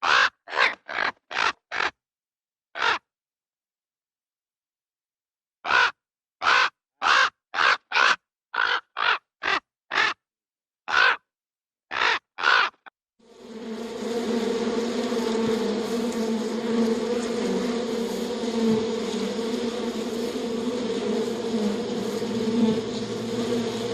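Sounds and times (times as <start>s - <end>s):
harsh animal calls: 0.0s - 2.0s, 2.8s - 3.0s, 5.7s - 10.2s, 10.9s - 11.2s, 11.9s - 12.9s
steady buzzing hum: 13.3s - 23.9s.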